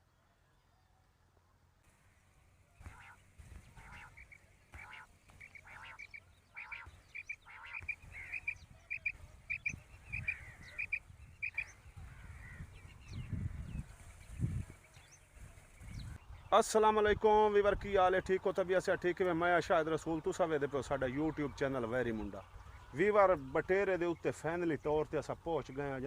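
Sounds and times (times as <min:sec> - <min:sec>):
quail calling: 0:02.8 - 0:12.7.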